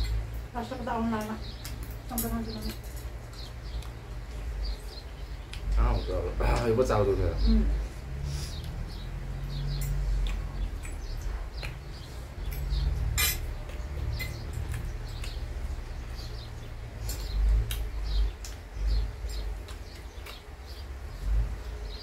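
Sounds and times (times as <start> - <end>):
chewing close to microphone: 17.1 - 20.9.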